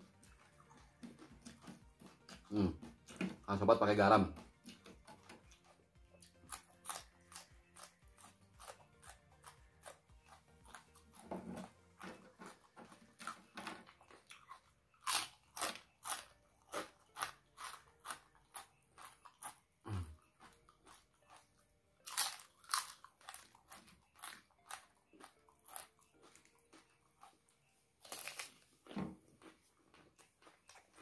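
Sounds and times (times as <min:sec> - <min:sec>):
person crunching chilies: 0:00.0 - 0:31.0.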